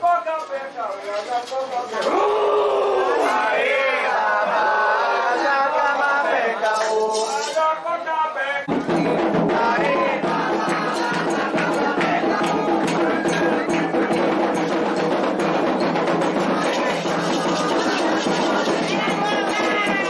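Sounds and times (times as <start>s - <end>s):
voices chanting: 1.9s - 20.0s
drums: 8.6s - 20.0s
struck percussion: 8.7s - 20.0s.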